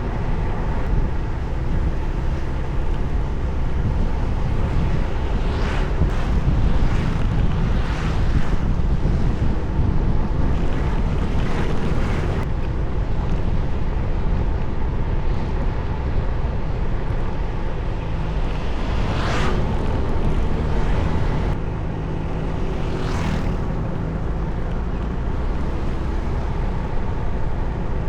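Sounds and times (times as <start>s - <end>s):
rushing whooshes: 0.0s - 24.6s
tyres on road: 0.0s - 28.0s
wind buffeting microphone: 0.0s - 28.0s.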